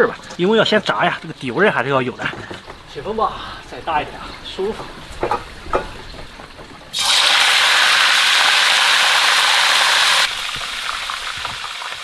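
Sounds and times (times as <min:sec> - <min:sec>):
chicken deep-frying in hot oil: 0:06.9 - 0:12.0.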